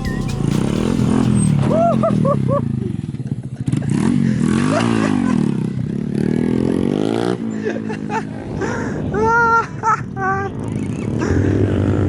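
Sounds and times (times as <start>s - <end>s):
car engine revving: 0.0s - 5.3s.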